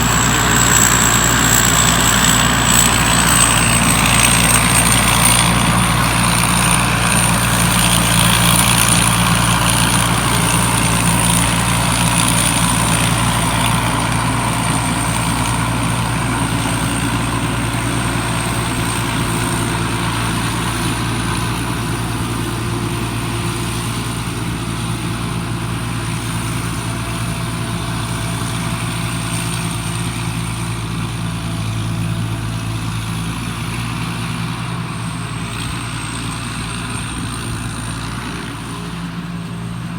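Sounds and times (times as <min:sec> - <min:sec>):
high-pitched whine: 0:00.0 - 0:21.6
harvester engine humming: 0:00.0 - 0:39.9.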